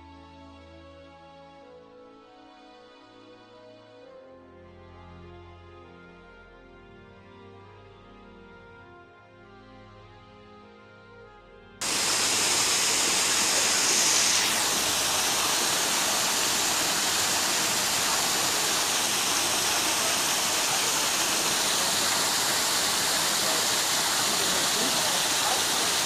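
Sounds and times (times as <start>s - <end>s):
waterfall rushing: 11.8s - 26.0s.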